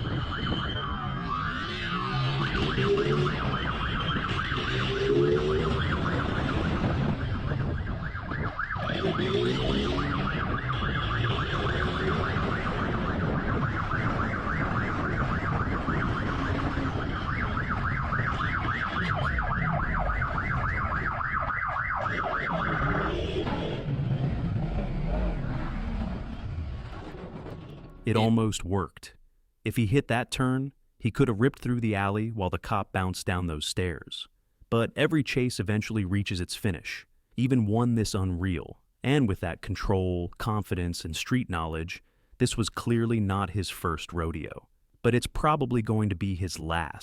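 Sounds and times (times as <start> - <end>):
motorcycle engines: 0.0 - 21.0
police siren yelping: 0.0 - 24.4.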